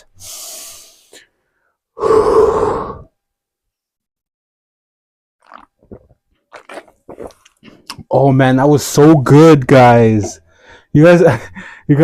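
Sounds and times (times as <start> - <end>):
person sipping a drink: 5.4 - 8.1
swallowing: 5.4 - 8.1.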